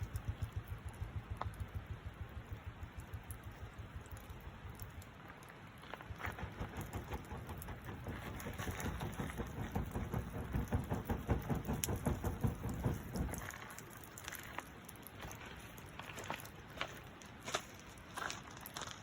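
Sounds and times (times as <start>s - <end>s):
low rumble: 0.0s - 13.6s
campfire crackling and popping: 0.0s - 19.0s.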